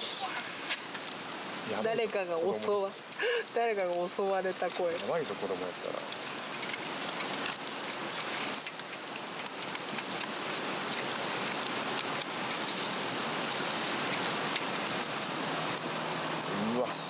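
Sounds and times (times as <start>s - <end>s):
fire crackling: 0.0s - 17.0s
flame hissing: 0.0s - 17.0s.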